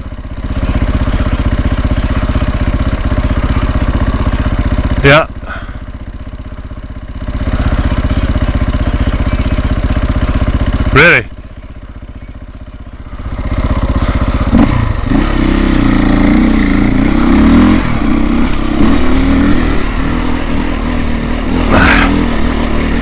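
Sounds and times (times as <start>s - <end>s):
dirt bike engine revving: 0.0s - 11.2s, 12.7s - 23.0s.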